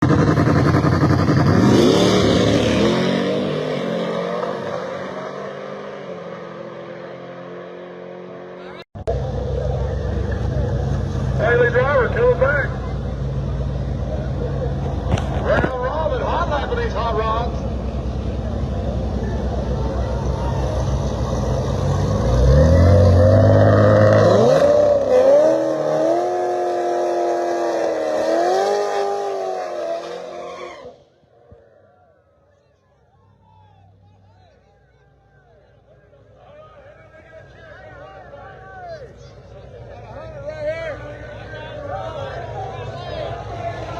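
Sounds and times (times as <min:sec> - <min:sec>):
racing engine accelerating: 0:00.0 - 0:15.6, 0:17.5 - 0:31.0.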